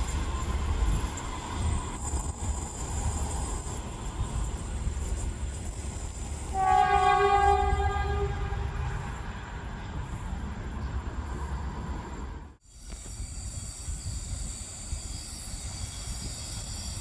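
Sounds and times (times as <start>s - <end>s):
train horn blast: 6.5s - 9.2s.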